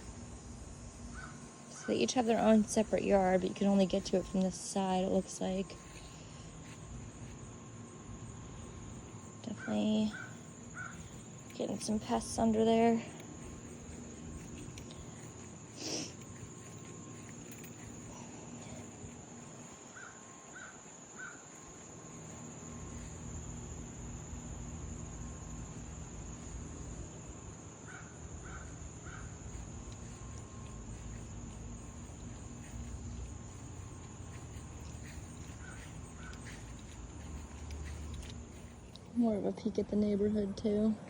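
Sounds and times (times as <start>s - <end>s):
high insect drone: 0.0s - 41.0s.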